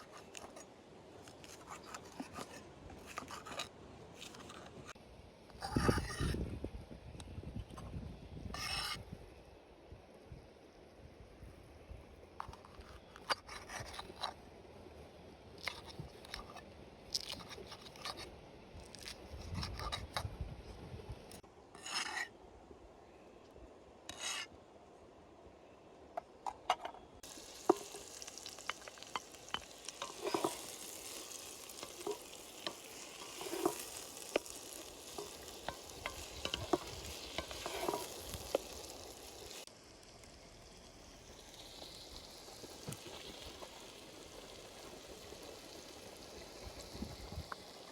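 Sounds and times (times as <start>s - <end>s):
food sizzling in a pot: 27.2s - 47.9s.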